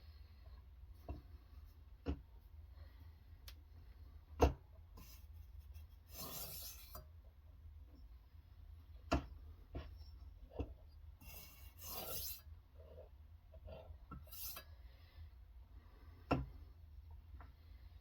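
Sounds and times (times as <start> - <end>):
stone rasping on knife edge: 6.1 - 7.0, 11.2 - 12.5.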